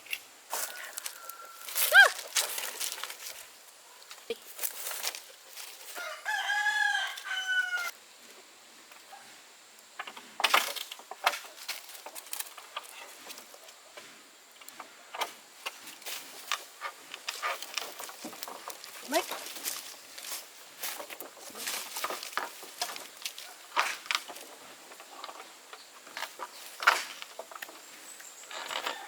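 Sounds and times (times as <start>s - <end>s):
rooster crowing: 0.5s - 2.2s, 5.9s - 8.0s, 28.8s - 29.0s.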